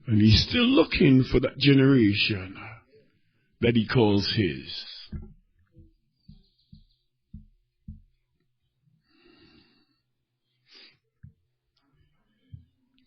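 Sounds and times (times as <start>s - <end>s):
soft low thumps: 5.1s - 8.2s.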